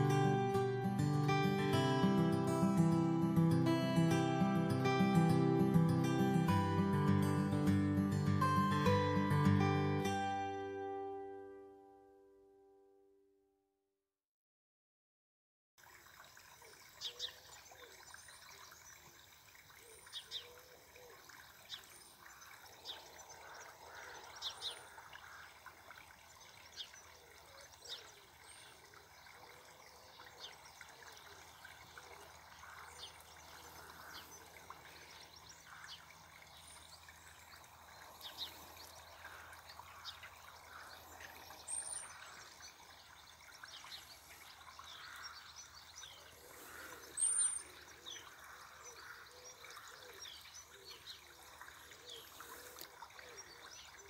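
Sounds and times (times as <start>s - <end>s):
birds chirping: 19.8s - 25.6s, 26.2s - 54.0s.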